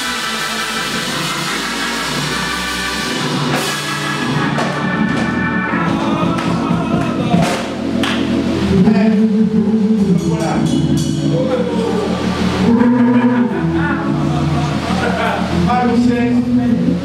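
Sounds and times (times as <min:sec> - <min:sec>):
cymbal crashes: 0:00.0 - 0:05.4
band playing held chords: 0:00.0 - 0:17.0
drum kit: 0:00.0 - 0:17.0.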